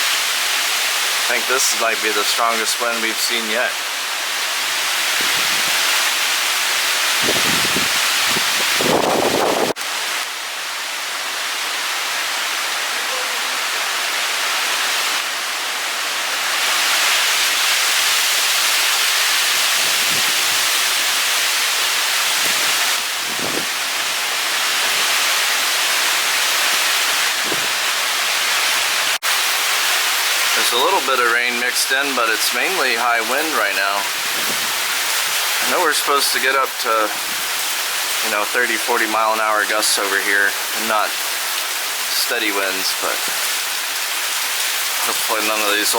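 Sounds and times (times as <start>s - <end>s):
storm wind rushing through trees: 0.0s - 31.2s, 31.8s - 38.3s
rain: 0.0s - 45.9s
wind thumps on microphone: 7.2s - 9.8s, 19.8s - 20.7s, 22.4s - 23.8s, 27.3s - 27.8s.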